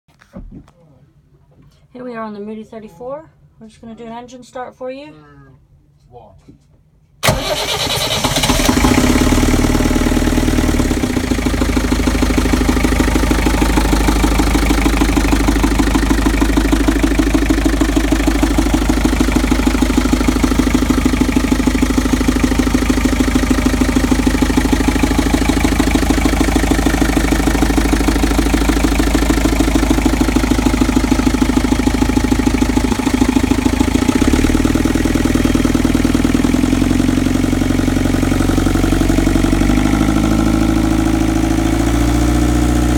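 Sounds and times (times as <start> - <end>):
boat diesel engine idling: 7.2 - 41.6.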